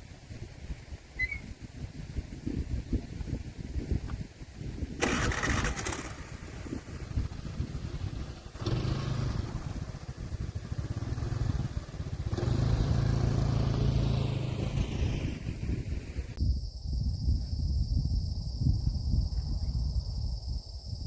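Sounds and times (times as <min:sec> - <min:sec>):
vehicle engine running: 0:05.0 - 0:16.4.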